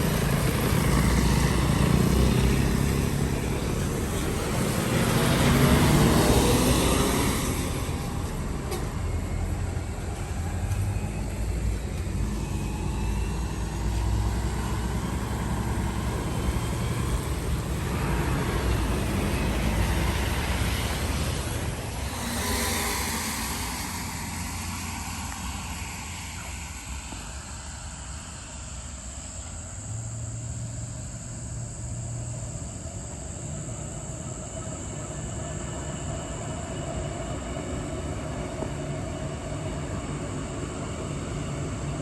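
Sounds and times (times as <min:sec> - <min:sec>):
heavy vehicle low rumble: 0:00.0 - 0:36.4
burst of hiss: 0:21.9 - 0:28.6.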